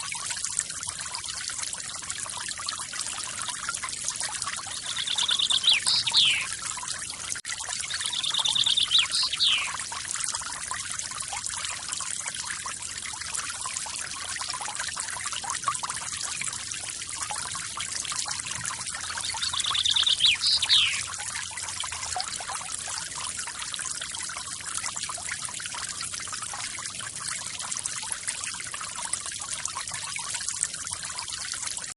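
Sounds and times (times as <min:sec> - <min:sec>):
bird trilled call: 0:04.7 - 0:06.5, 0:07.9 - 0:09.8, 0:19.1 - 0:21.1.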